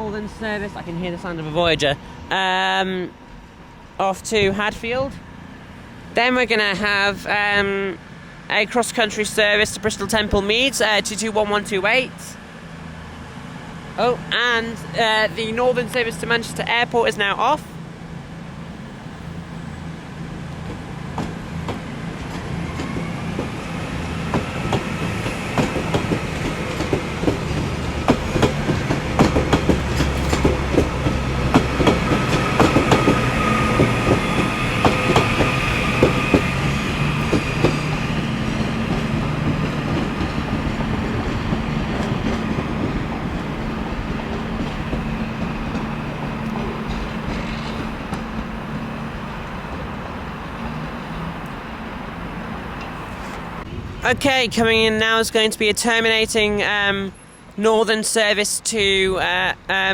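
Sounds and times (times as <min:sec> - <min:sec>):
train drive whine: 0:00.0 - 0:57.6
train wheels clicking over rails: 0:18.7 - 0:53.7.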